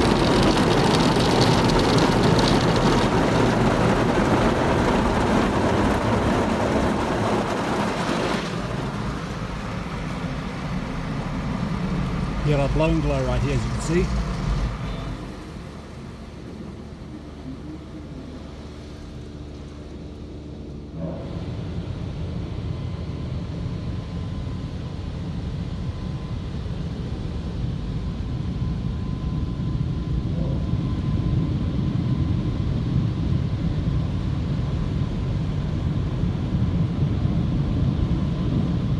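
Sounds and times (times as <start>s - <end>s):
water spraying on car: 0.0s - 20.8s
car wash machinery running: 0.0s - 30.4s.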